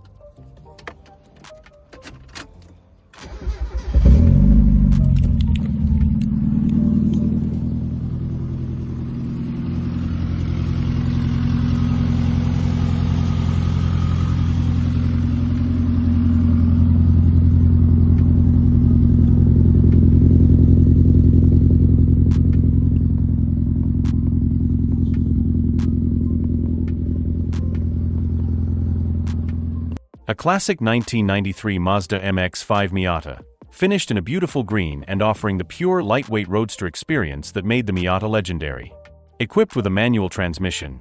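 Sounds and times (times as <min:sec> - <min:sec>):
car engine running at low revs: 0:03.8 - 0:30.0.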